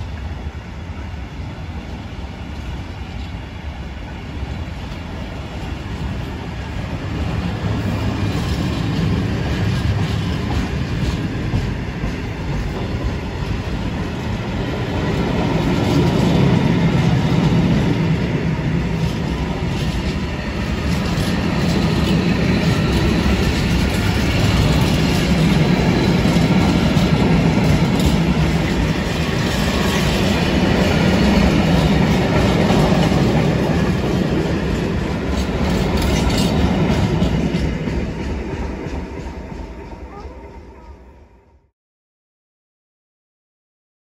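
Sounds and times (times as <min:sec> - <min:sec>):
freight train wheels rumbling: 0:00.0 - 0:41.7
wheels clicking over rail joints: 0:19.0 - 0:39.3.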